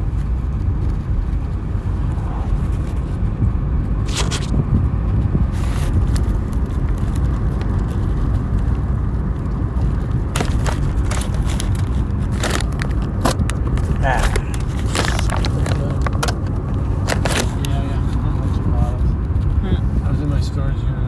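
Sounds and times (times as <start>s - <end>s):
car road noise: 0.0s - 21.0s
crackles and clicks: 5.6s - 17.8s.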